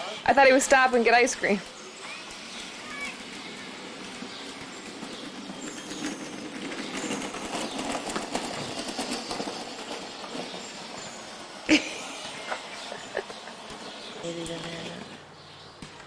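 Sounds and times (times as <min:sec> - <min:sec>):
ride vehicle rattling clatter: 0:00.0 - 0:16.0.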